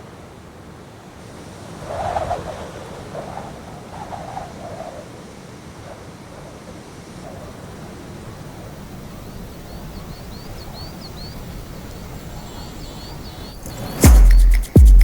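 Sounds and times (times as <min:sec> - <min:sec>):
short high chirps: 0:13.6 - 0:15.0.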